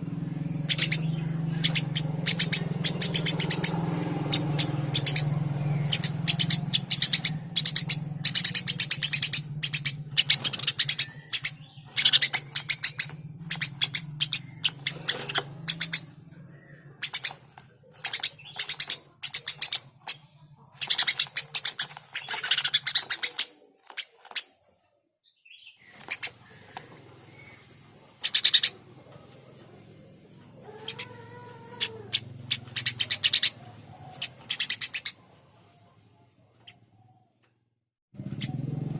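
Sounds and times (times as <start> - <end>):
sparrow chirping: 0.0 - 35.8, 38.2 - 38.9.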